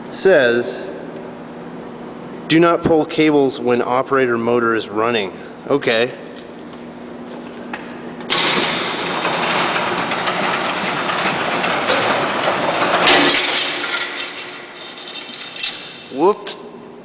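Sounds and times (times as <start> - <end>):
garage door motor rattling: 7.5 - 16.3
loud mechanical clatter: 8.3 - 16.3.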